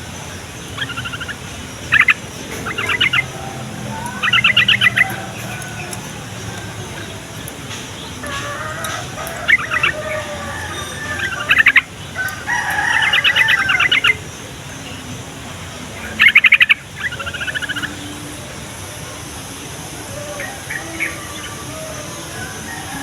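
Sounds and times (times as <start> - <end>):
bird chirping rapidly: 0.0 - 18.2
soft bird trill: 0.0 - 19.1.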